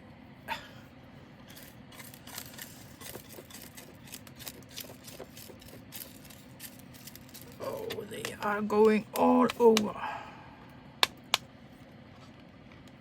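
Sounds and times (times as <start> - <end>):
resin beads clicking and rattling: 1.5 - 8.4.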